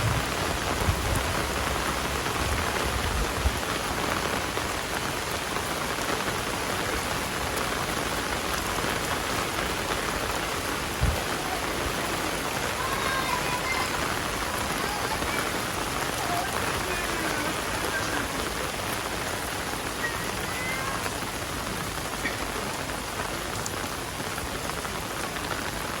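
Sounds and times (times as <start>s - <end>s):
heavy rain on surfaces: 0.0s - 26.0s
low thump: 11.0s - 11.3s.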